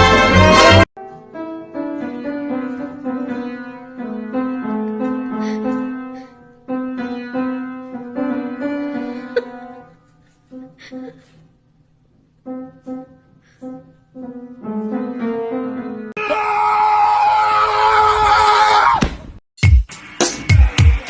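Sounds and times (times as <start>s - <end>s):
loud music: 0.0s - 0.9s, 19.6s - 21.0s
soft piano melody: 1.0s - 10.8s, 12.1s - 16.1s.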